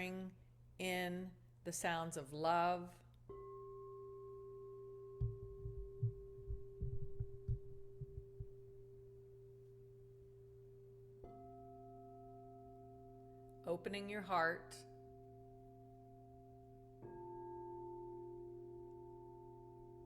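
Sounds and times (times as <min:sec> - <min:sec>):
singing bowl ringing: 0:03.3 - 0:13.8, 0:14.9 - 0:20.0
lower-pitched bowl ringing: 0:03.3 - 0:20.0
soft low thumps: 0:05.2 - 0:08.9.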